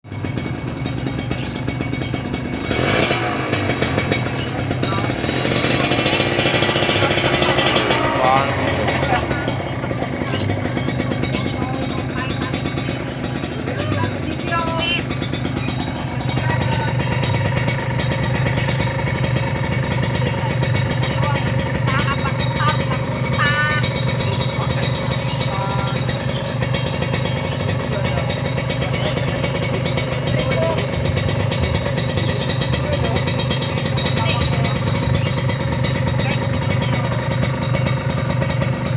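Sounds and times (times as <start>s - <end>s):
two-stroke motorcycle engine revving: 0.0s - 38.9s.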